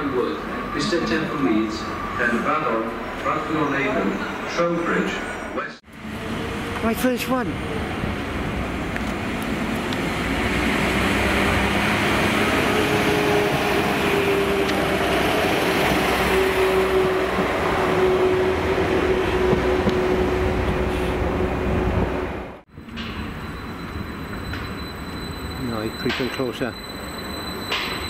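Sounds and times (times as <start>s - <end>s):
train wheels and engine rumbling: 0.0s - 28.0s.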